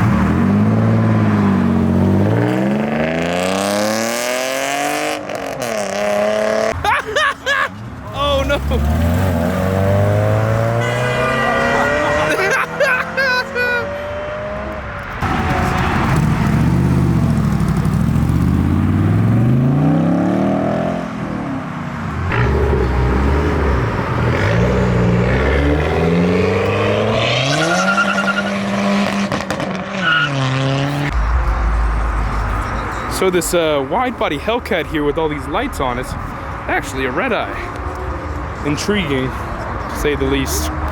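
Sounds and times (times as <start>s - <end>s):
car engine accelerating: 8.5s - 21.1s, 22.2s - 33.2s.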